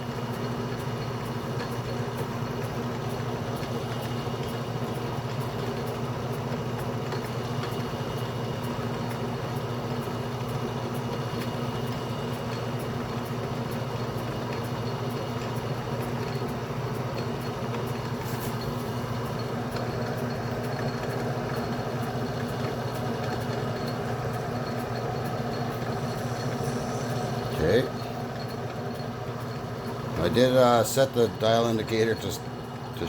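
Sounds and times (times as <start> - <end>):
metal lathe motor and gear hum: 0.1 - 33.0
faint regular ticking: 13.7 - 33.0.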